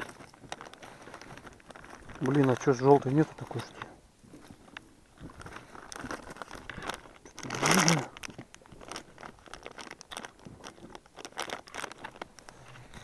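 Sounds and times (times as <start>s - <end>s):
crinkling rustles: 0.0s - 13.0s.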